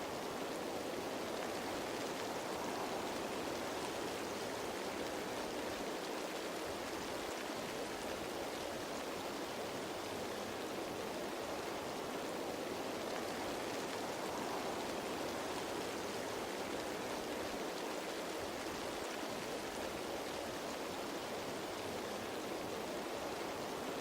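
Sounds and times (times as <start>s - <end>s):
rain pattering on leaves: 0.0s - 24.0s.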